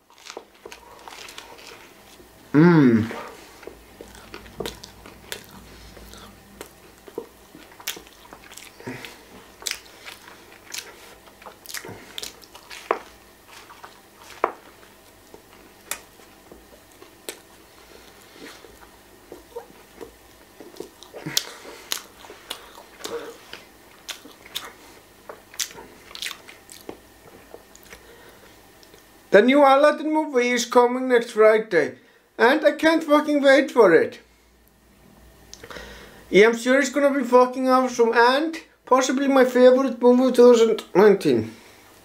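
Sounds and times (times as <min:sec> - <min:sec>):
person biting and chewing sandwich: 0:00.0 - 0:29.1.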